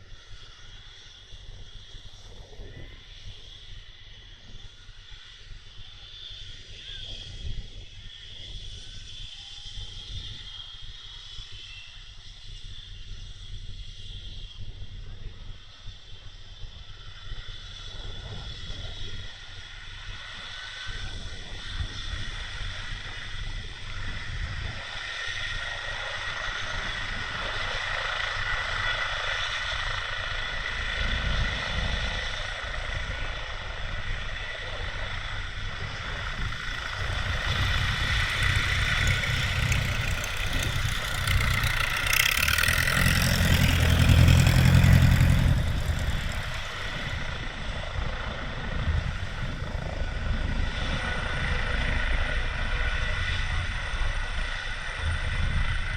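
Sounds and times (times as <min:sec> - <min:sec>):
helicopter turbine whine: 0:00.0 - 0:55.9
helicopter rotor beat: 0:16.9 - 0:55.9.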